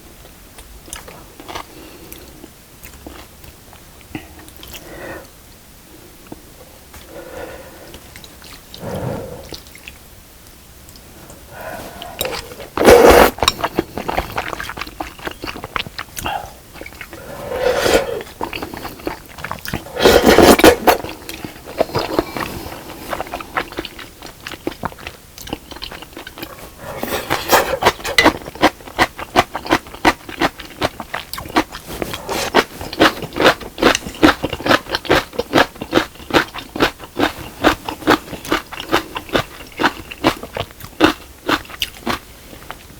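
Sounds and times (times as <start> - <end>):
loud slurping: 8.7 - 9.7, 11.4 - 14.4, 16.2 - 23.4
wet chewing: 10.9 - 42.9.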